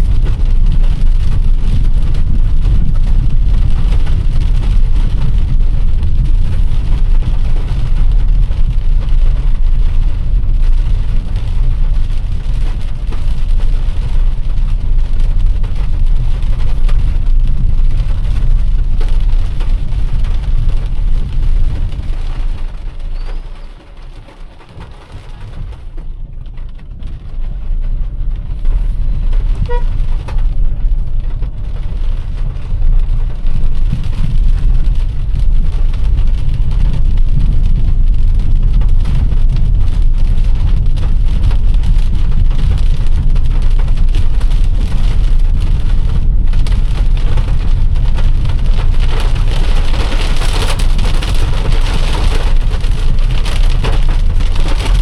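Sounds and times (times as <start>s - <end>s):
car driving rumble: 0.0s - 55.0s
rain hissing: 0.0s - 55.0s
brief tone: 23.2s - 23.6s.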